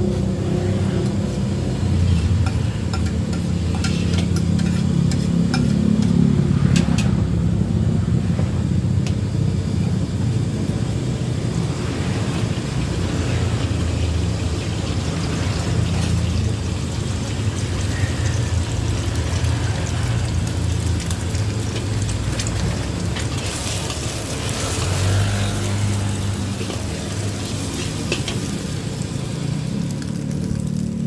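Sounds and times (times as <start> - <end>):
rice frying in a wok: 0.0 - 31.0
metal spatula scraping a wok: 0.8 - 6.2, 23.2 - 28.6.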